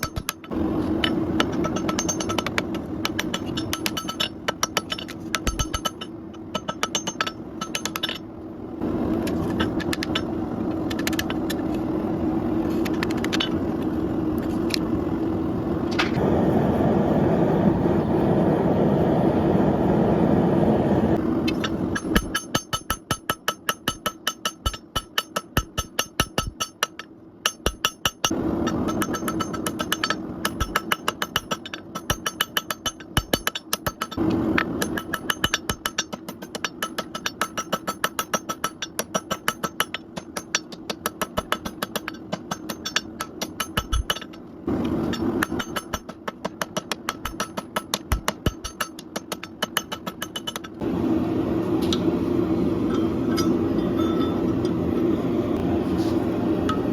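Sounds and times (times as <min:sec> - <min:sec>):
hammer striking steel on anvil: 0:00.0 - 0:08.2, 0:21.5 - 0:44.4, 0:45.0 - 0:50.8, 0:52.8 - 0:55.2
low hum: 0:00.0 - 0:22.5, 0:50.1 - 0:56.9
steady rushing roar: 0:00.4 - 0:22.3, 0:28.3 - 0:30.8, 0:34.2 - 0:35.2, 0:44.5 - 0:46.1, 0:50.6 - 0:56.9.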